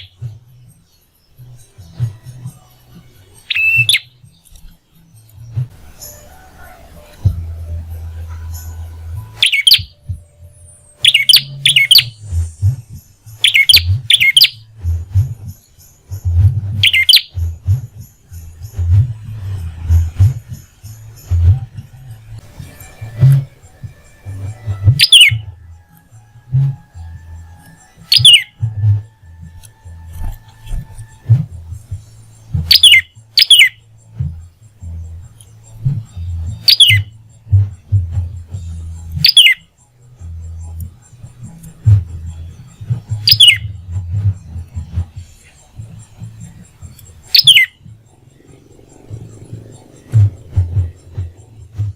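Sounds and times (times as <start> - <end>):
bird chirping: 0.0 - 14.8, 15.4 - 19.3, 22.6 - 25.6, 27.7 - 28.8, 31.1 - 37.3, 38.4 - 51.9
sharp piercing bird calls: 3.4 - 4.6, 9.4 - 10.0, 11.0 - 12.2, 13.4 - 14.7, 16.8 - 17.3, 24.8 - 25.6, 28.0 - 28.6, 32.4 - 33.8, 36.5 - 37.1, 39.2 - 39.7, 43.2 - 43.7, 46.8 - 51.7
background music with pulsing beat: 6.9 - 51.9
steady low rumble: 28.6 - 36.6, 40.2 - 51.9.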